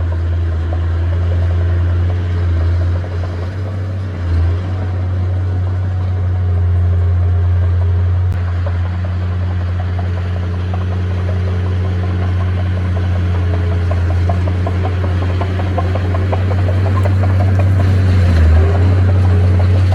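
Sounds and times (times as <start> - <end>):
diesel engine humming: 0.0 - 19.9
faint rapid ticking: 8.4 - 19.9.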